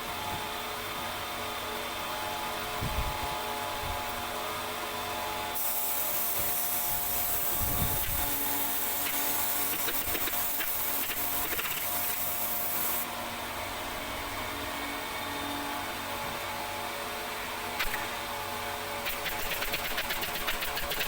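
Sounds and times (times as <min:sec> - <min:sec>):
workshop machinery humming: 0:00.0 - 0:21.0
high hiss: 0:05.6 - 0:13.0.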